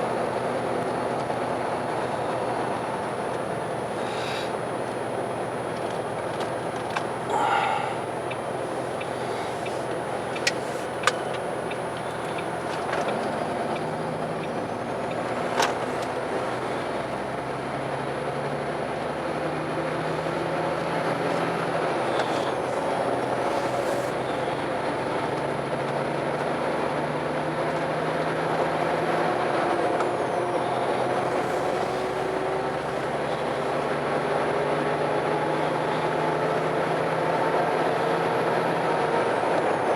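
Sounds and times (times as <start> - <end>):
car engine hum and road noise: 0.0 - 39.9
sharp clicks: 9.0 - 14.6.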